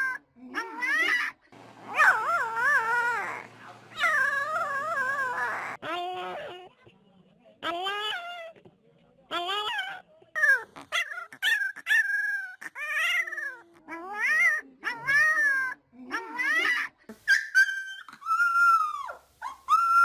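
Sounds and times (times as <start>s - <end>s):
dog howling and whining: 1.8s - 6.5s, 9.5s - 16.7s, 17.3s - 20.0s.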